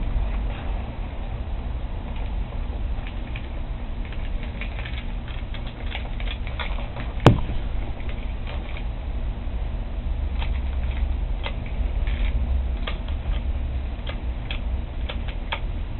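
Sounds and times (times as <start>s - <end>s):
sharp knock: 7.2s - 7.6s.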